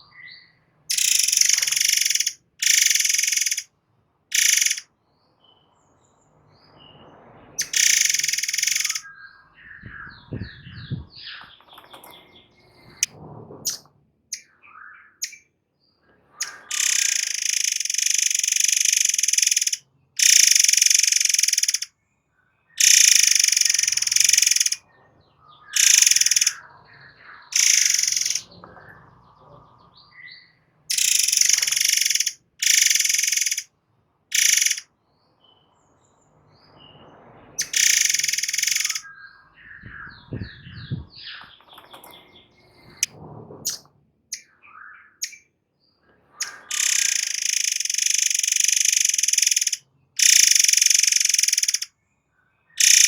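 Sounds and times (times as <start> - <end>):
faint bird chirps: 0.0 - 3.7, 4.3 - 5.9, 6.7 - 13.1, 13.7 - 33.7, 34.3 - 35.8, 36.6 - 43.1, 43.7 - 53.0
bird giving harsh hissing shrieks: 0.9 - 3.7, 4.3 - 4.8, 7.6 - 9.0, 16.4 - 21.9, 22.8 - 24.8, 25.8 - 26.6, 27.6 - 28.5, 30.9 - 33.7, 34.3 - 34.8, 37.6 - 39.0, 46.4 - 51.9, 52.8 - 53.0.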